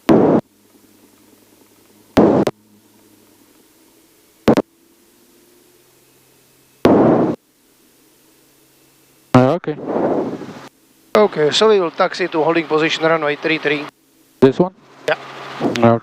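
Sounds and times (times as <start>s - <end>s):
faint low hum: 0.0s - 16.0s
rushing cockpit noise bursts: 6.9s - 7.4s, 9.4s - 13.9s.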